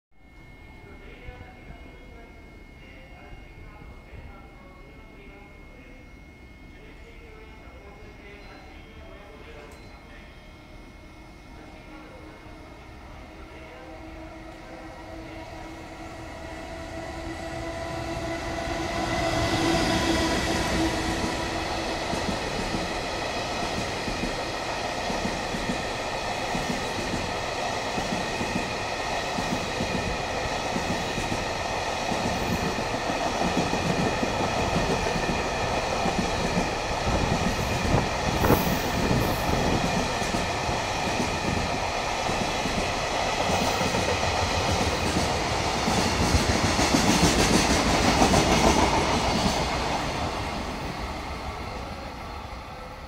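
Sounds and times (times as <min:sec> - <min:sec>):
locomotive whine: 0:00.2 - 0:53.0
train wheels clickety-clack: 0:18.2 - 0:51.6.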